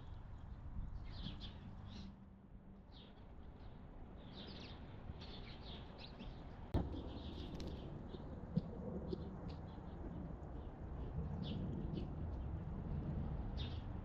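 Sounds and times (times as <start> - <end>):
songbirds chirping: 0.0 - 2.2, 2.8 - 8.2.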